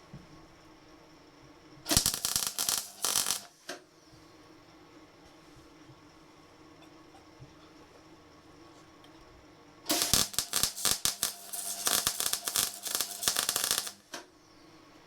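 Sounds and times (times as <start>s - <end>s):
faint steady hum: 0.0s - 15.0s
welding arc crackling: 1.9s - 3.8s, 9.9s - 14.2s.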